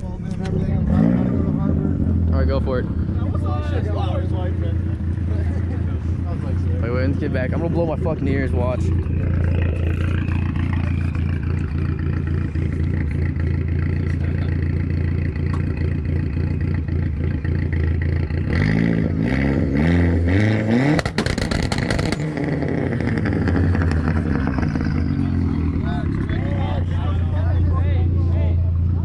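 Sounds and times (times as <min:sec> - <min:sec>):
car engine idling and revving: 0:00.0 - 0:29.0
exhaust pops and bangs: 0:07.5 - 0:18.6, 0:20.5 - 0:25.1.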